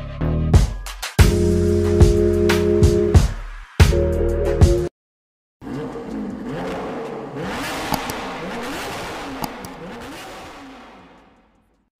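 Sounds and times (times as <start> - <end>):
background music: 0.0 - 4.9
car engine revving: 5.6 - 11.9.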